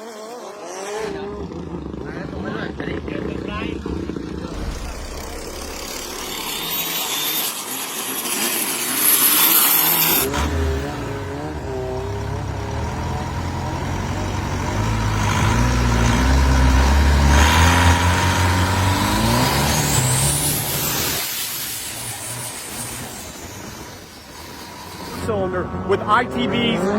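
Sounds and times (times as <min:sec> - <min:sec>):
loud rushing noise: 0:04.4 - 0:10.3
boat engine revving: 0:08.8 - 0:26.9.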